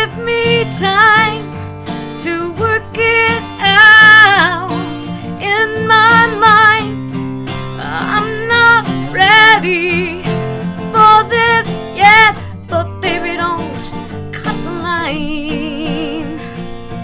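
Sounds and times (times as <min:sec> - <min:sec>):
acoustic guitar strummed: 0:00.0 - 0:17.0
person singing with vibrato: 0:07.7 - 0:16.7.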